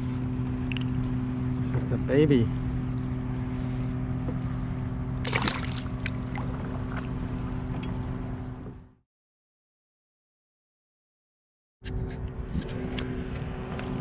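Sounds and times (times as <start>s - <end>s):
water and wind noise: 0.0s - 8.9s, 11.9s - 14.0s
low engine hum: 0.0s - 9.0s, 11.8s - 14.0s
short splash: 5.2s - 7.1s.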